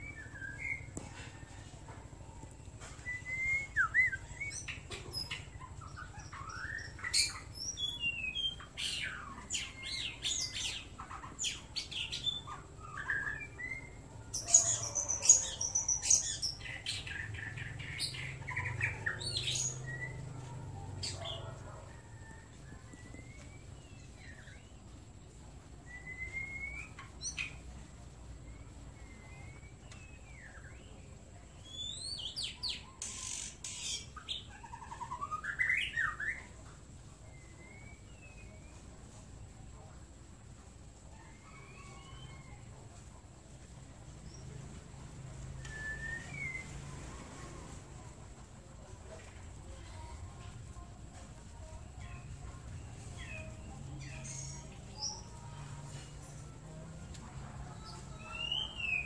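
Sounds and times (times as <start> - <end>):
birds whistling and clicking: 0.0 - 24.9, 25.8 - 27.8, 28.5 - 36.6, 37.2 - 39.0, 45.4 - 47.0, 57.8 - 59.0.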